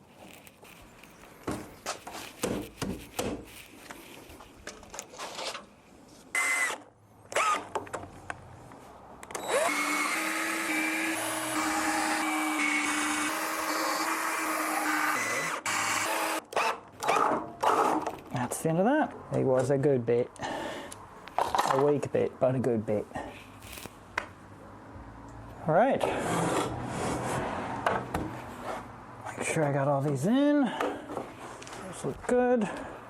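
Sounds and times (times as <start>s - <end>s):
power drill running: 9.4s - 18.0s.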